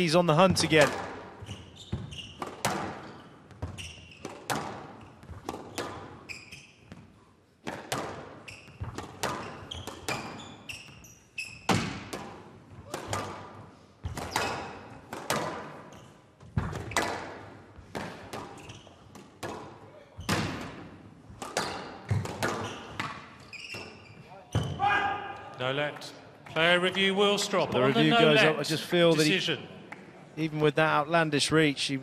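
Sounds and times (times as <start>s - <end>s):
squash ball hit by rackets: 0.7s - 6.2s, 7.6s - 10.4s, 11.6s - 15.8s, 16.4s - 23.3s.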